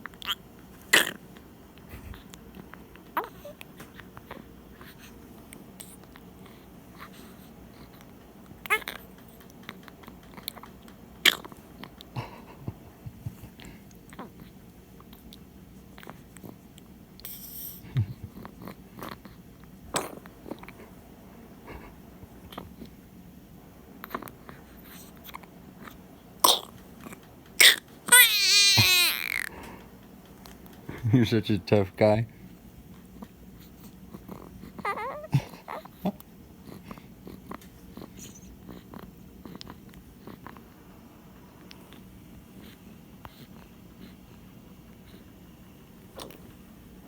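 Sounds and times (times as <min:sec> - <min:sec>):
pet low vocal sound: 0:17.8 - 0:18.5.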